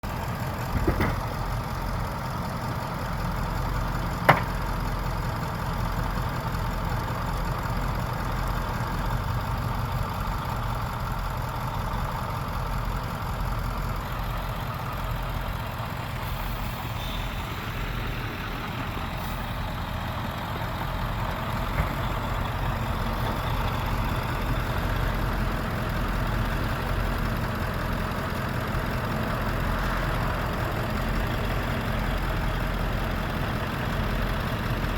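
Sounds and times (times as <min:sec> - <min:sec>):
truck engine idling: 0:00.0 - 0:34.9
short knock: 0:00.7 - 0:01.2, 0:04.3 - 0:04.6.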